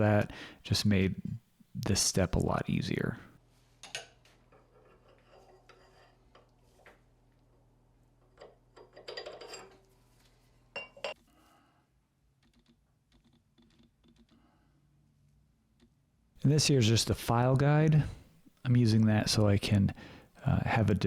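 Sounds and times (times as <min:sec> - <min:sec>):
steel tools clicking and knocking: 0:08.3 - 0:09.8.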